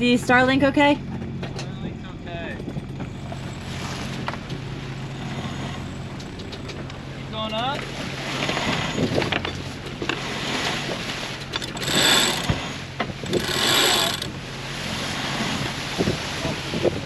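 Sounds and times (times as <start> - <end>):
boat engine humming: 0.0 - 17.0
deck winch ratcheting: 4.4 - 7.0, 11.3 - 14.5.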